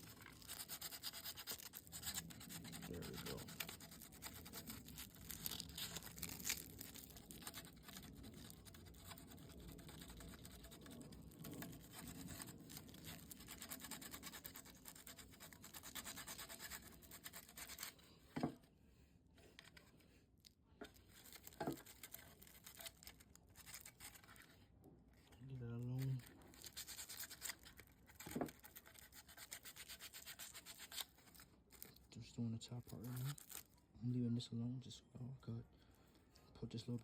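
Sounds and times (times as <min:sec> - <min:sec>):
sandpaper scratching plastic: 0:00.0 - 0:18.0, 0:20.9 - 0:24.6, 0:25.3 - 0:32.0, 0:32.6 - 0:33.7.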